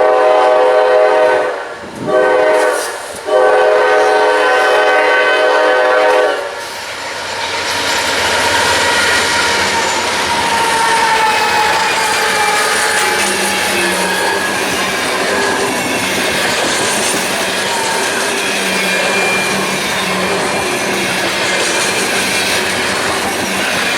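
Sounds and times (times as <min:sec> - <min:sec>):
locomotive air horn blasts: 0:00.0 - 0:06.8
train wheels on rail: 0:00.0 - 0:23.9
wheel squeal: 0:07.7 - 0:23.9.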